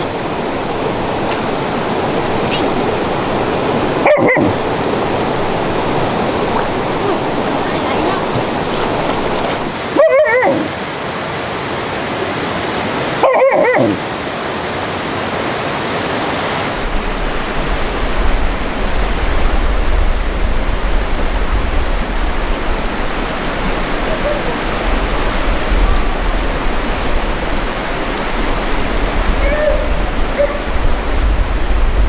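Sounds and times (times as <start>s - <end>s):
rushing stream water: 0.0s - 32.0s
dog whining: 4.0s - 4.6s, 10.0s - 10.7s, 13.2s - 14.0s, 24.0s - 24.6s, 29.4s - 30.7s.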